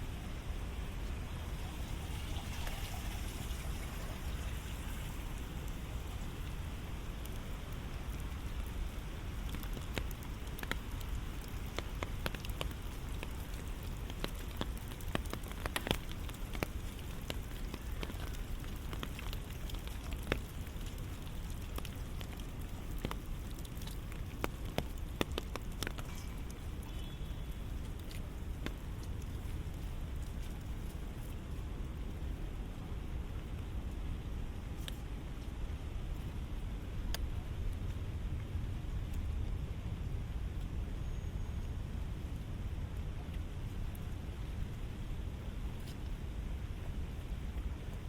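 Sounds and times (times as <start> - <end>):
steady rain falling: 0.0 - 48.0
sharp raindrop hits: 0.1 - 31.1.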